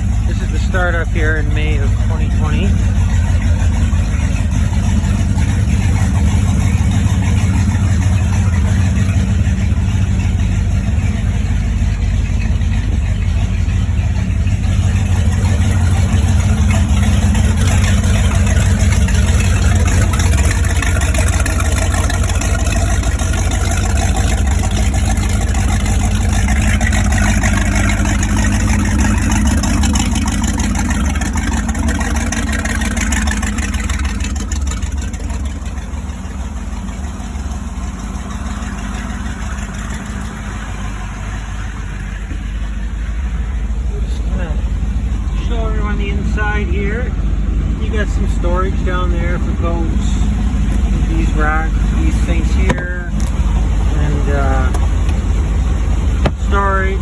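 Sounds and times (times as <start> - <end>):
motorboat engine droning: 0.0 - 57.0.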